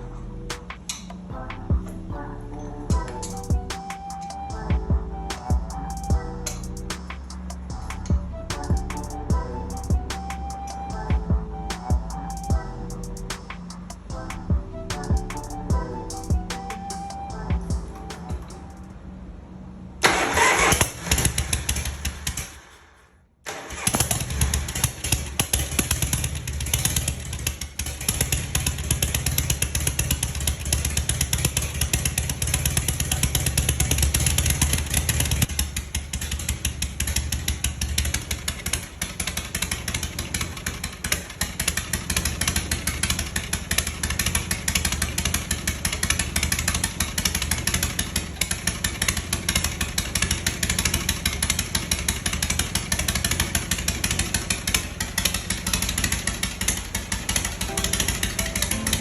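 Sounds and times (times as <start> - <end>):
motorcycle engine cranking: 20.0 - 22.6, 23.5 - 57.8
motorcycle engine running: 23.9 - 58.9.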